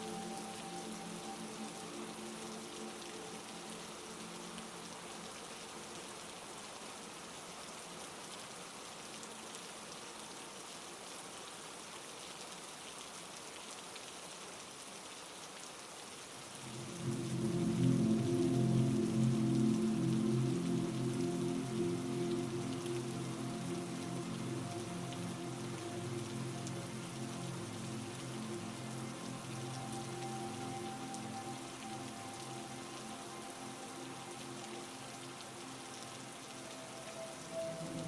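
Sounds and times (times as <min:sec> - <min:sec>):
heavy rain hissing: 0:00.0 - 0:09.5, 0:16.2 - 0:38.0
low drone of held tones: 0:16.7 - 0:38.0.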